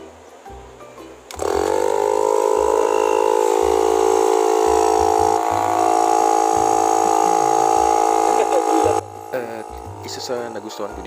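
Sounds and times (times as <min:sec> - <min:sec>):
tire inflator compressor buzzing: 0:01.3 - 0:11.0.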